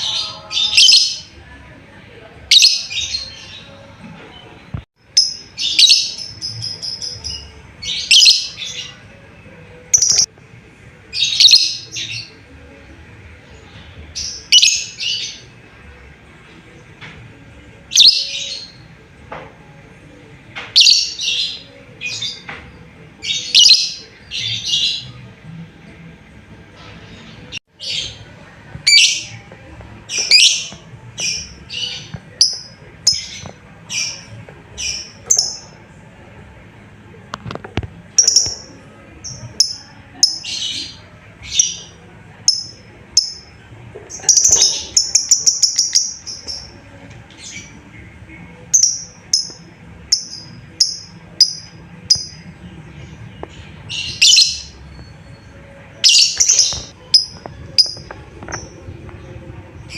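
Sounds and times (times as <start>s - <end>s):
lovebird chirping: 9.9s - 10.3s, 48.8s - 52.5s, 53.8s - 59.9s.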